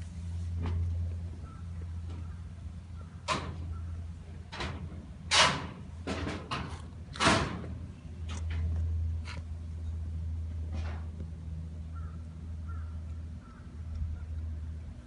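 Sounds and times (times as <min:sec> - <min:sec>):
steady low hum: 0:00.0 - 0:15.0
sharp knocks and bangs: 0:03.2 - 0:03.7, 0:04.5 - 0:07.8.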